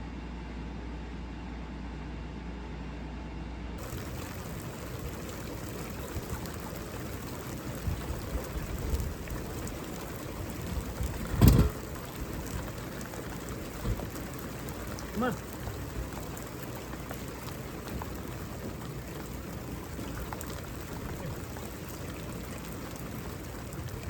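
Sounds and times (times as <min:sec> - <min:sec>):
rain falling: 0:03.8 - 0:24.0
loud thump: 0:11.2 - 0:11.8.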